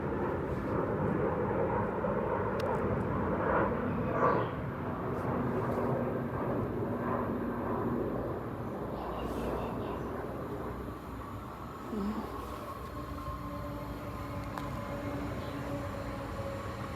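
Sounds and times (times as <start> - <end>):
faint steady hum: 7.5 - 16.9.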